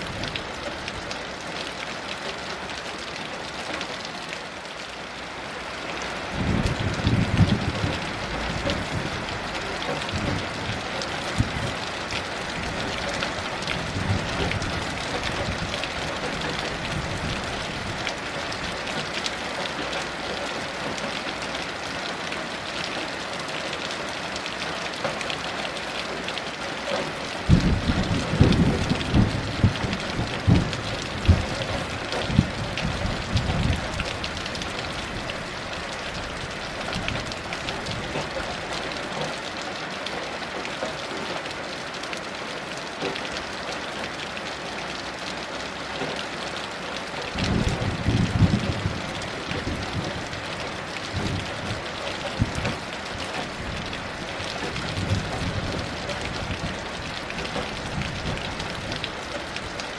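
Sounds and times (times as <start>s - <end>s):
heavy rain: 0.0s - 59.9s
thunder rumbling: 6.4s - 13.0s, 27.4s - 38.3s, 47.4s - 56.8s.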